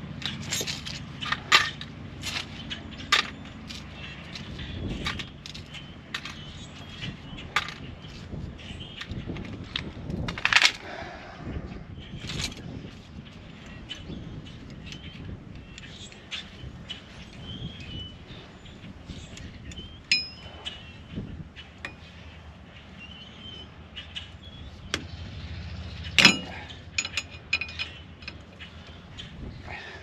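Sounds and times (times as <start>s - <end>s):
hand tools clinking on metal: 0.1s - 7.9s, 19.3s - 20.8s, 26.0s - 28.7s
loud metal clank: 26.2s - 28.0s.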